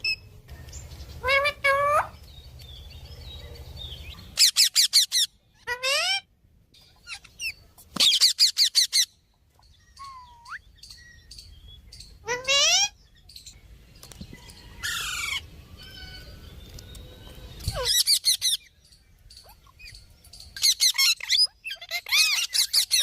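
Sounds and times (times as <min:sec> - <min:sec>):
parrot squawks: 0:04.4 - 0:06.3, 0:12.2 - 0:13.0, 0:20.6 - 0:23.0.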